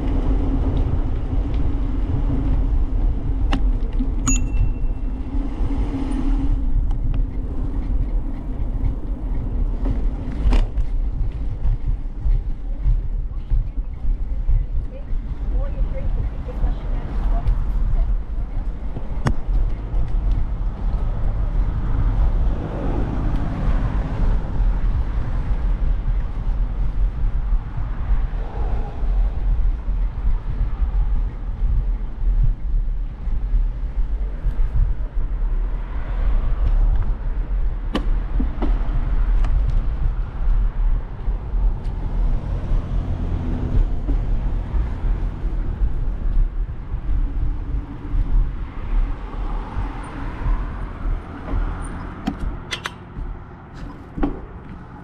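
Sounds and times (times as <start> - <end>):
bicycle tyres rolling on path: 0.0 - 4.2, 5.0 - 52.1
wind rumble on microphone: 0.0 - 55.0
sharp click: 52.2 - 53.0.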